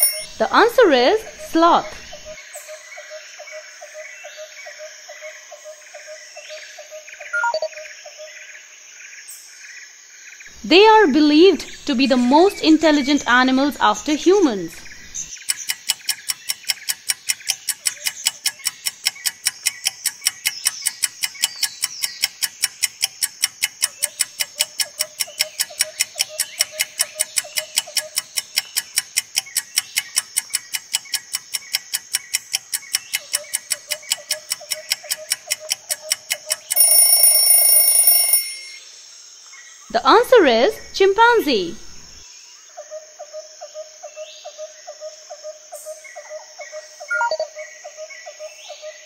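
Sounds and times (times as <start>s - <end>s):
alarm ringing: 0.0s - 2.3s, 35.7s - 38.8s
clock ticking rapidly: 12.7s - 38.8s.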